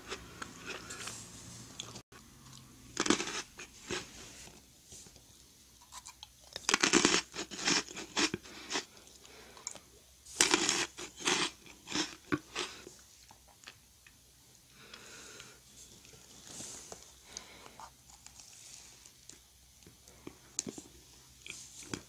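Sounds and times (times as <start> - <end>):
meringue cookie crunching: 1.8 - 14.2.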